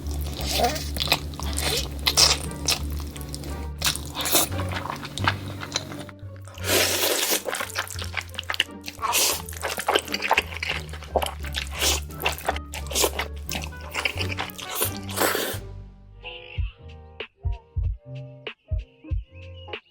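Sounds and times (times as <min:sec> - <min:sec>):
eating noodles with slurps: 0:00.0 - 0:15.6
background music with bass line: 0:00.0 - 0:19.9.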